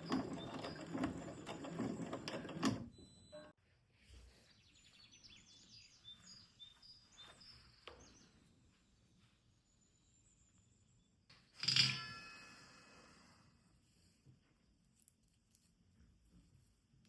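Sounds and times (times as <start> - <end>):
sewing machine stitching: 0.0 - 3.1.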